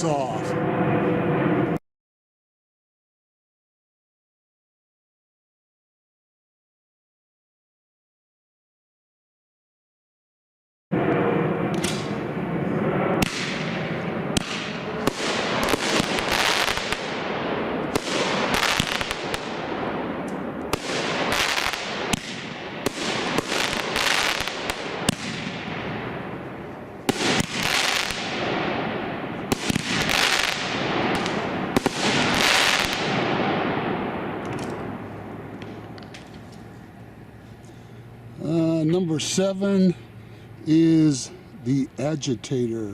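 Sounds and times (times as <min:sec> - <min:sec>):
fireworks shots and bursts: 0:00.0 - 0:01.8, 0:10.9 - 0:35.9
fireworks crackling: 0:11.0 - 0:37.2.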